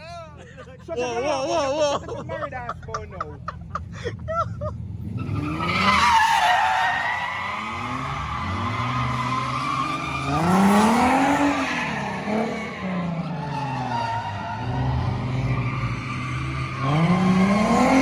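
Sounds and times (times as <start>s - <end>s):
car engine revving: 4.6s - 18.0s
tyres squealing: 5.2s - 18.0s.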